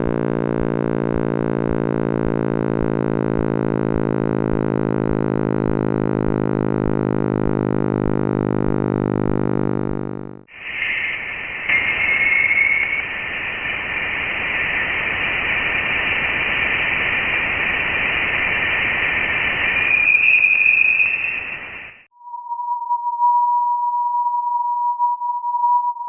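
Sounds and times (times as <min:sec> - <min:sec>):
radio static hiss: 0:10.5 - 0:22.1
faint thin tone: 0:10.5 - 0:22.7.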